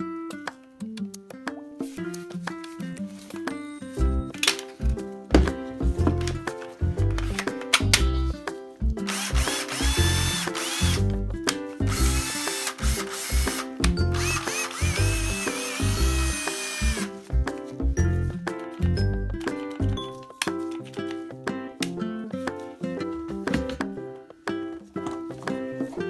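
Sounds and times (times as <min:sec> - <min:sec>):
background music with beat: 0:00.0 - 0:26.0
cordless drill motor spinning: 0:09.1 - 0:11.1, 0:11.9 - 0:17.1.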